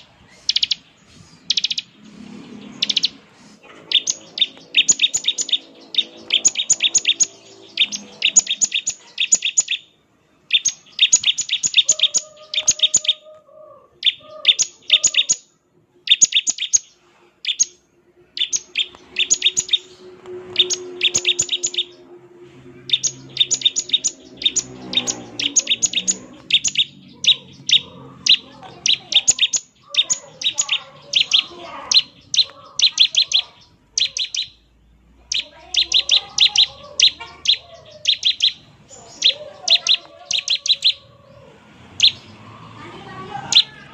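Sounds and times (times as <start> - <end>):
bird singing sharp high notes: 0.0 - 13.3, 14.0 - 34.7, 35.3 - 41.1.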